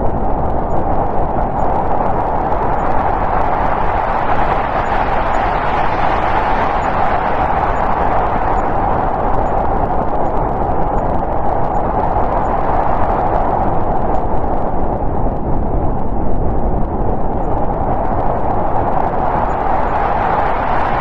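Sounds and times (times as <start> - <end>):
snowstorm wind blowing: 0.0 - 21.0.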